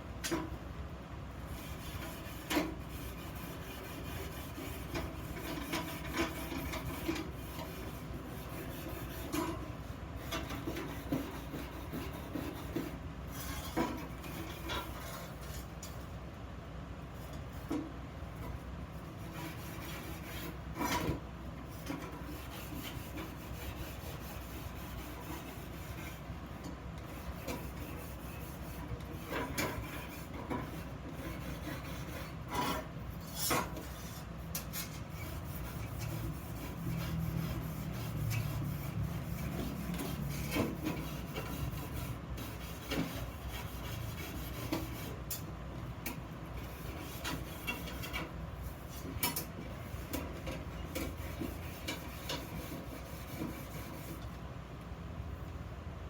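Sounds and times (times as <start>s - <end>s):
hand rasping on workpiece: 1.6s - 9.6s, 27.1s - 45.2s, 49.0s - 54.2s.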